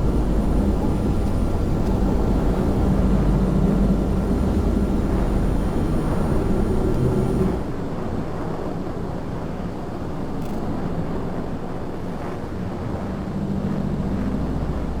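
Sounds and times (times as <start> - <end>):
low rumbling drone: 0.0 - 7.7, 12.7 - 15.0.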